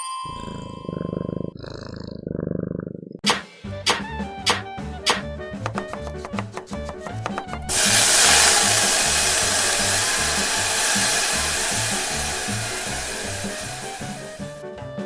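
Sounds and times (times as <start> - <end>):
background music with beat: 3.2 - 15.0
food sizzling in frying pan: 7.0 - 14.6.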